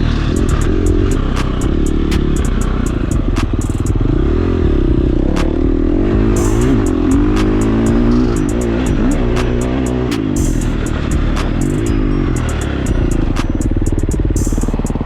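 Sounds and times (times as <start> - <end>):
dirt bike engine revving: 0.0 - 15.0
sharp clicks and knocks: 0.4 - 4.0.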